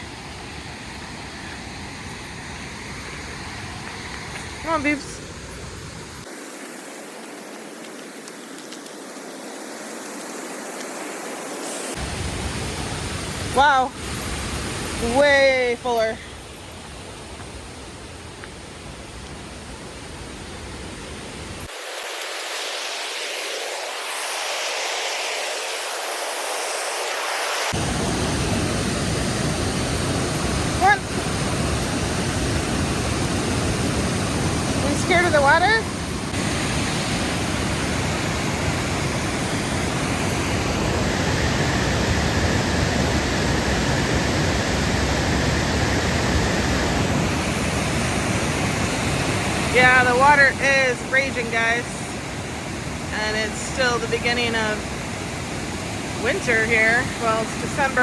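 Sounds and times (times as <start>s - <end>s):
waterfall roaring: 20.9s - 58.0s.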